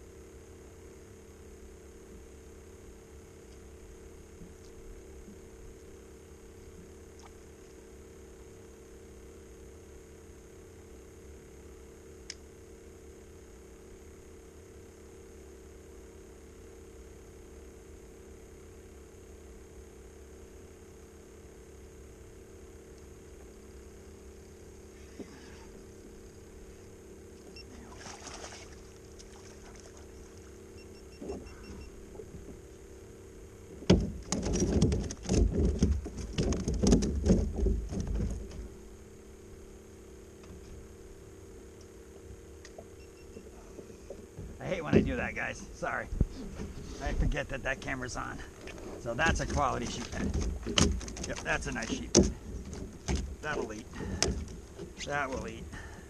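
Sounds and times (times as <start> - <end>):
steady low hum: 0.0 - 56.0
rustling or splashing: 27.8 - 30.5
faint beeps: 30.8 - 32.0.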